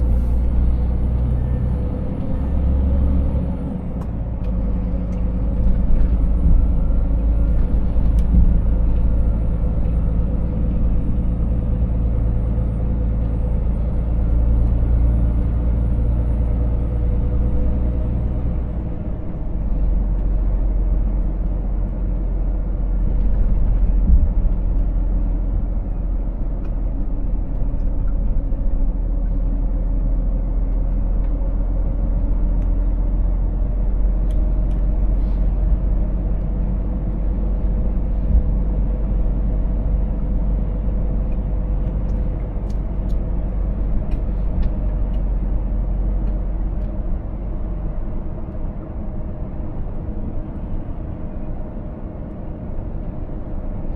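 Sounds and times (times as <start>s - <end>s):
road rumble: 0.0s - 53.9s
truck engine drone: 0.0s - 53.9s.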